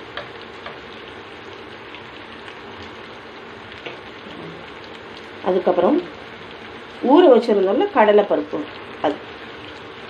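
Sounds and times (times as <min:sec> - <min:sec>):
vegetables sizzling in a pan: 0:00.0 - 0:10.0.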